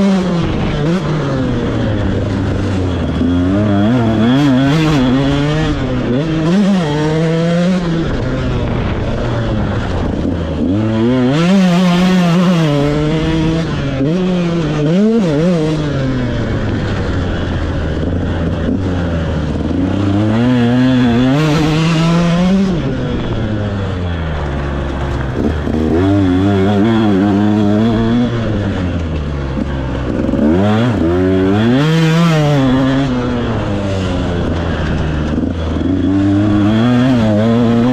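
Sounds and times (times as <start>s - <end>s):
motocross bike engine revving: 0.0s - 37.9s.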